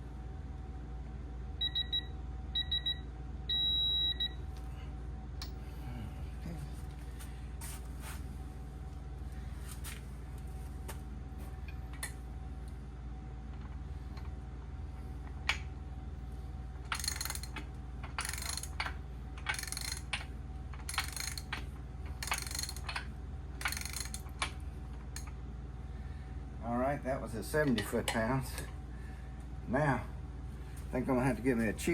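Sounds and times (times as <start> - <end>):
ratchet wrench clicking: 16.9 - 20.2, 20.8 - 24.5.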